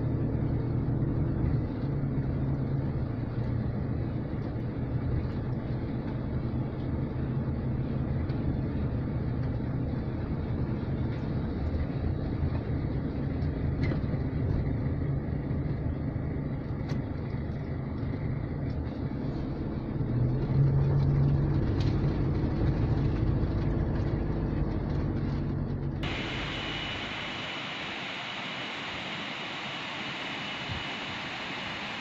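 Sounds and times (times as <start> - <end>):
vehicle engine hum: 0.0 - 32.0
steady hiss: 26.0 - 32.0.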